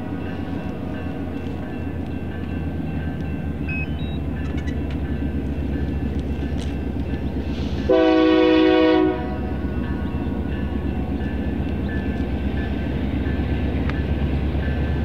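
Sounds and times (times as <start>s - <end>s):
diesel locomotive rumbling: 0.0s - 15.0s
locomotive air horn chord: 7.6s - 9.6s.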